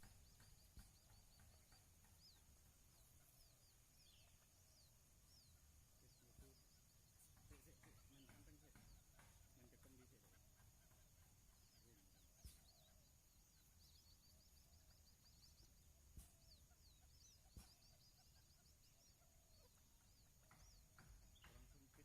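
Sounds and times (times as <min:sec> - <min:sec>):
faint high bird chirps: 0:00.0 - 0:22.0.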